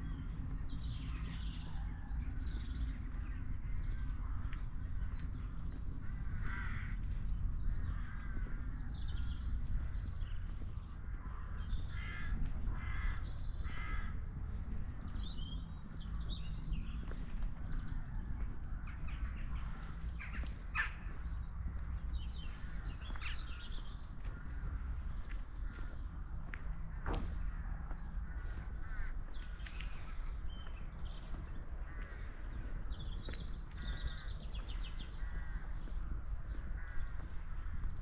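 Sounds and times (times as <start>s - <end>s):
low background rumble: 0.0s - 38.0s
harsh cawing bird call: 6.0s - 7.1s, 11.4s - 14.2s.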